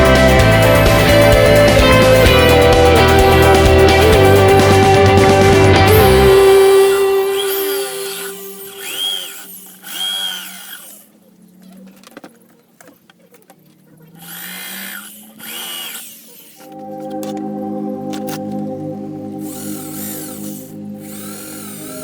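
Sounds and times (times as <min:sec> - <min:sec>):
power drill motor whining: 0:00.0 - 0:04.9, 0:05.8 - 0:11.2, 0:14.2 - 0:16.8, 0:19.4 - 0:22.0.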